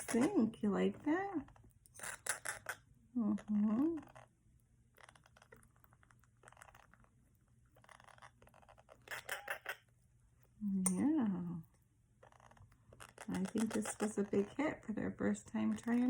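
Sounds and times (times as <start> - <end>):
beaks clicking against spoon: 13.0 - 14.5.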